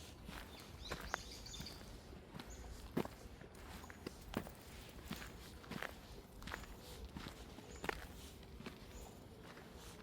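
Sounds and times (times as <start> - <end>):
faint outdoor background noise: 0.0 - 10.0
birds chirping: 0.2 - 3.0, 3.6 - 5.5, 6.4 - 9.7.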